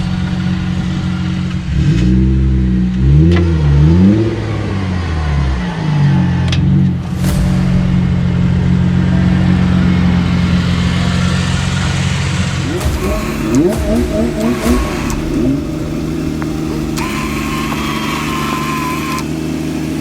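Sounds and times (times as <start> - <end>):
engine revving: 0.0 - 20.0
sharp clicks: 12.7 - 19.4.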